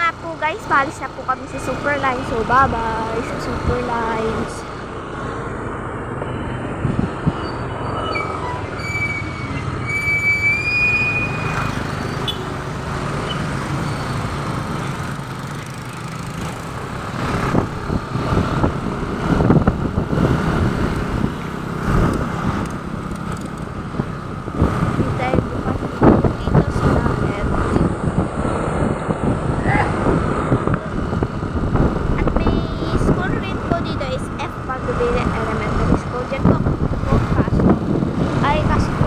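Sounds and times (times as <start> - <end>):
motorcycle engine and road noise: 0.0 - 39.0
wind gusts on microphone: 0.0 - 39.0
high whistling squeal: 7.4 - 12.4.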